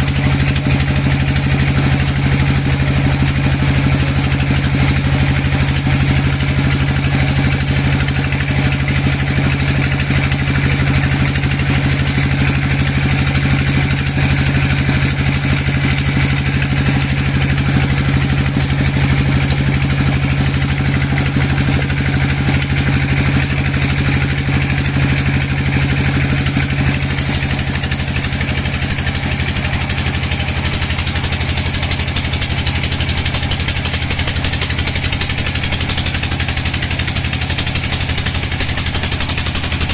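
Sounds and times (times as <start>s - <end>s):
sawmill machinery humming: 0.0s - 39.9s
machine hiss: 26.5s - 39.9s.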